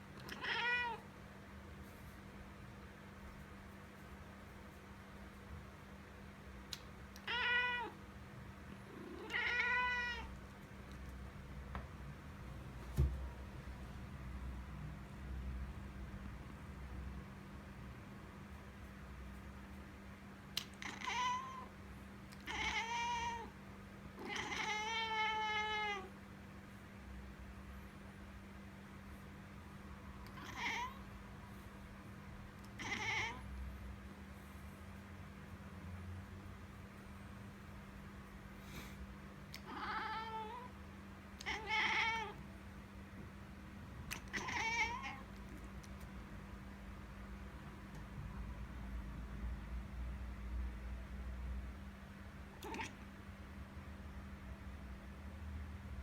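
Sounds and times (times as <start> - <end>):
cat meowing: 0.2 - 1.0, 7.2 - 8.0, 9.0 - 10.4, 20.8 - 21.7, 22.4 - 23.5, 24.2 - 26.1, 30.3 - 31.0, 32.6 - 33.4, 39.5 - 40.7, 41.4 - 42.4, 44.1 - 45.3, 52.6 - 53.0.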